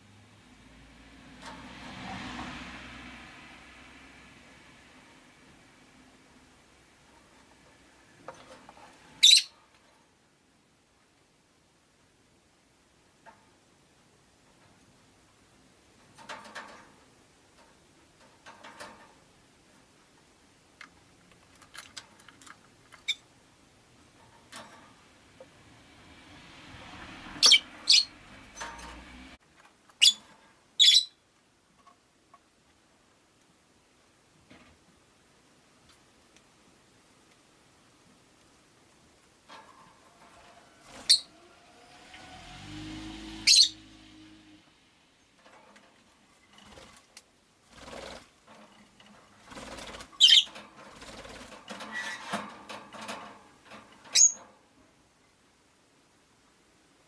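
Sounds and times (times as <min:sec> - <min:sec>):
birds rustling in a cage: 0:00.0 - 0:11.2, 0:11.8 - 0:55.4
lovebirds chirping shrilly: 0:09.2 - 0:09.5, 0:27.4 - 0:28.1, 0:30.0 - 0:30.2, 0:30.8 - 0:31.2, 0:41.0 - 0:41.3, 0:43.4 - 0:43.8, 0:50.2 - 0:50.5, 0:54.2 - 0:54.4
wings flapping: 0:46.5 - 0:54.2.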